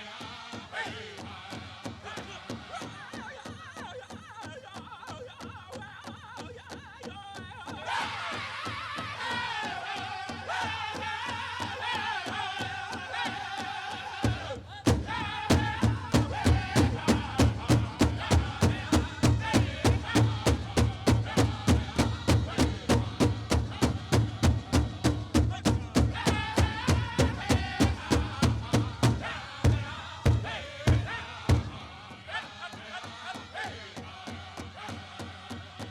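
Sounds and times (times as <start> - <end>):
group singing in high voices: 0.0 - 3.6, 7.6 - 35.9
big drum beating: 14.2 - 32.3.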